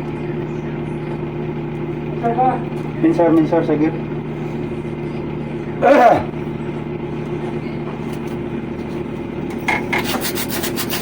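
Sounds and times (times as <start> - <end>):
mechanical hum: 0.0 - 11.0
person shouting: 5.8 - 6.3.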